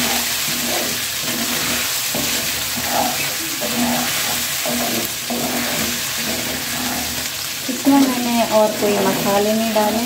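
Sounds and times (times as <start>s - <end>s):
spatula scraping a pan: 0.0s - 7.4s
food sizzling in a pan: 0.0s - 10.0s.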